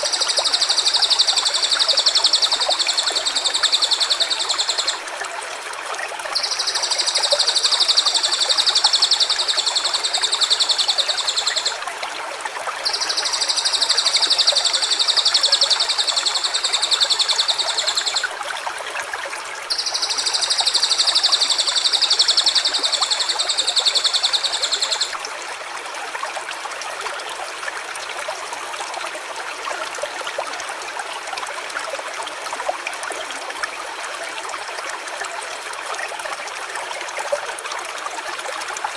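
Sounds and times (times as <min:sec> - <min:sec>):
stream running: 0:00.0 - 0:38.9.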